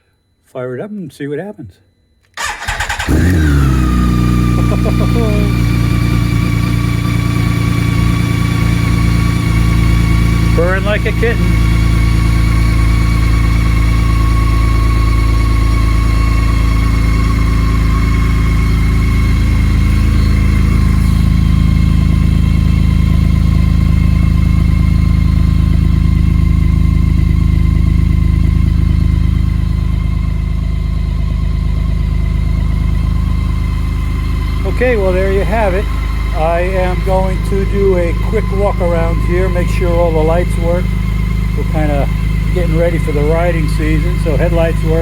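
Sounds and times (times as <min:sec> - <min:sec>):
motorcycle engine idling: 0:02.4 - 0:45.0
faint high whine: 0:33.8 - 0:45.0.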